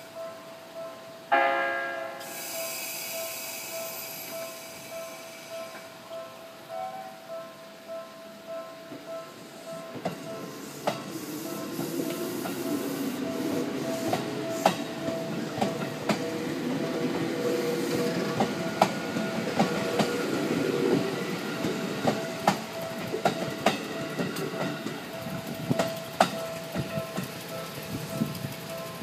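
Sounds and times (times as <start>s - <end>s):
train rumble: 8.5s - 29.0s
wheels clicking over rail joints: 9.9s - 29.0s.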